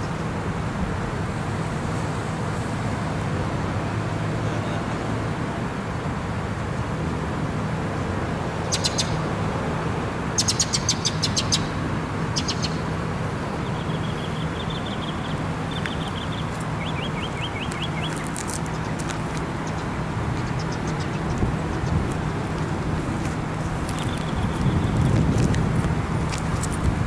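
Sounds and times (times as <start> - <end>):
small birds chirping: 8.6 - 9.4, 10.3 - 27.0.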